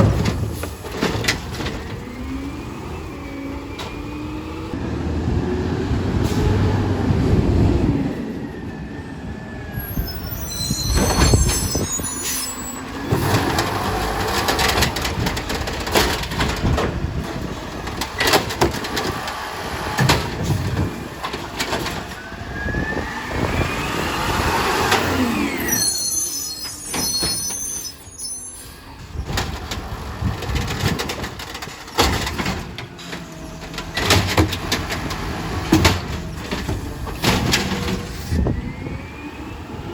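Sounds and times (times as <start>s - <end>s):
bins knocking and clattering: 0.0s - 2.0s, 13.1s - 22.2s, 29.2s - 38.2s
garbage truck engine whining: 0.0s - 39.9s
short high squeals: 9.8s - 12.9s, 25.2s - 29.0s.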